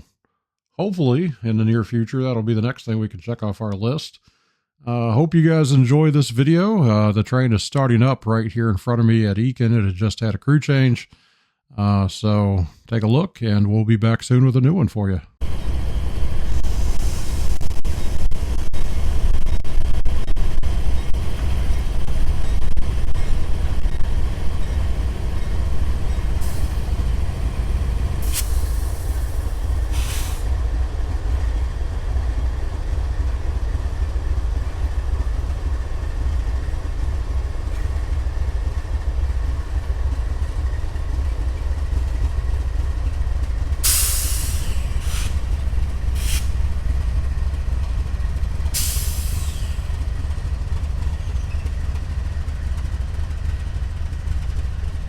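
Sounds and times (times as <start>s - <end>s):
diesel locomotives rumbling: 15.4s - 55.0s
air brake hisses: 28.2s - 30.6s, 43.8s - 45.5s, 46.1s - 46.6s, 48.7s - 49.9s.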